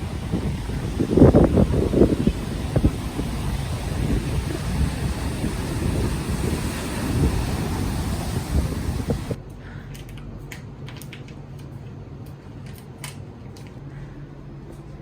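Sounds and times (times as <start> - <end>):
wind buffeting microphone: 0.0 - 9.4
steady low hum: 0.0 - 10.4.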